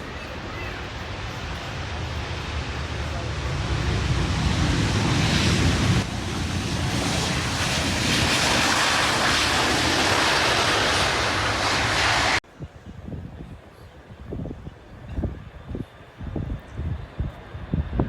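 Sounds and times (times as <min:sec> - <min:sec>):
jet engines roaring: 0:00.0 - 0:12.4.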